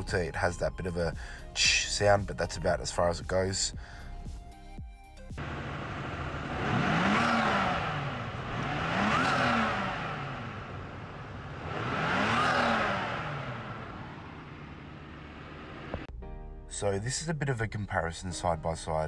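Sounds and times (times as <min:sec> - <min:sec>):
car engine revving from idle: 0:05.4 - 0:16.1.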